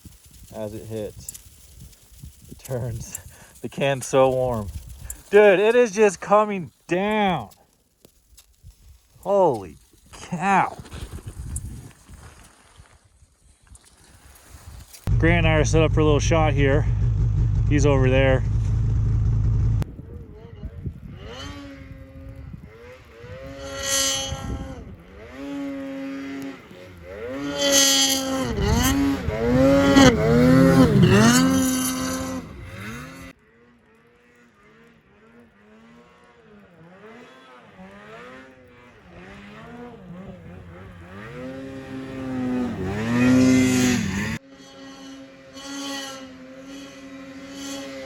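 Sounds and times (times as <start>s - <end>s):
snowmobile engine revving: 2.6s - 7.6s, 15.0s - 48.0s.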